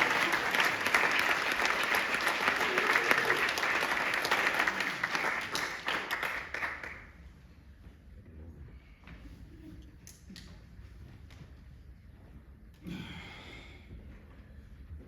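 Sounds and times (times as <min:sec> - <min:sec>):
audience applause: 0:00.0 - 0:07.1.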